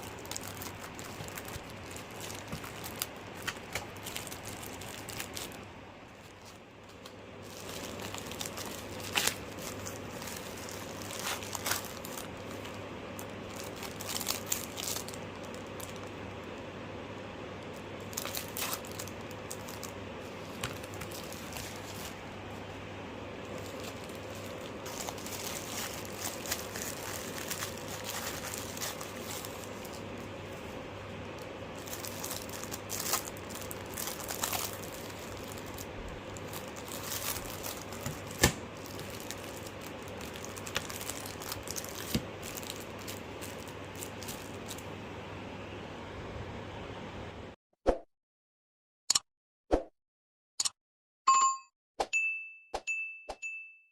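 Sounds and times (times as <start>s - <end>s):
packaging crinkling and rustling: 0.0s - 16.6s, 17.6s - 44.9s
steady low hum: 0.0s - 47.6s.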